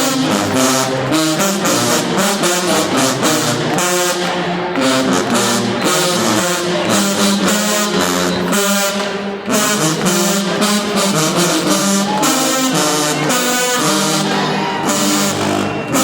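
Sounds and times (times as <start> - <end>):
marching band brass playing: 0.0 - 16.0.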